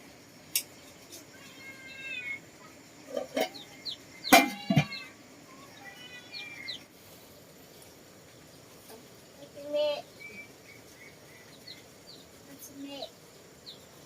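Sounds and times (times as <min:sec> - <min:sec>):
farmyard animal calls: 0:01.0 - 0:07.4.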